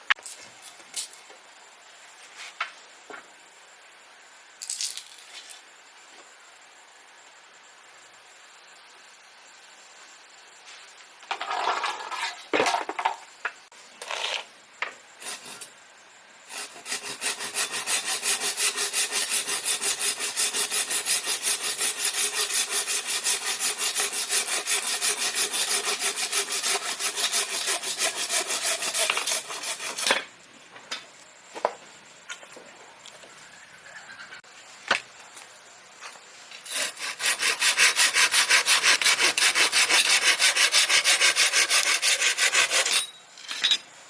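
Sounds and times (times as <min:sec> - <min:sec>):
hand saw cutting bamboo: 0:15.2 - 0:15.7, 0:16.5 - 0:30.2, 0:36.7 - 0:43.1.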